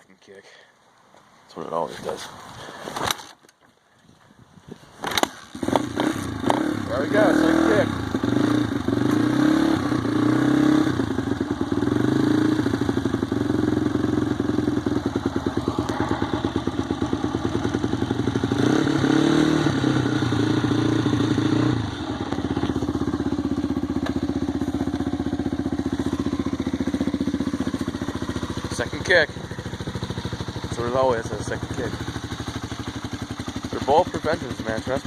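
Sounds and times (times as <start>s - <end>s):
dirt bike engine revving and idling: 5.0s - 35.0s.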